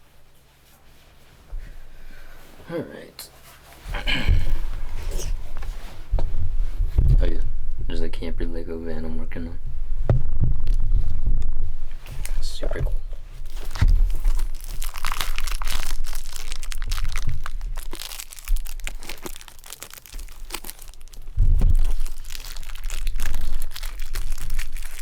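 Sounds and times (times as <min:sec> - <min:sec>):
cardboard box bumping: 0:12.8 - 0:15.5
shrink wrap crinkling and tearing: 0:13.4 - 0:25.0.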